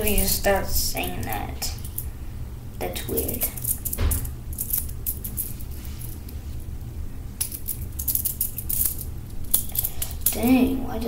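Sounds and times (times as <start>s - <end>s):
small hard parts clicking: 7.4s - 10.4s.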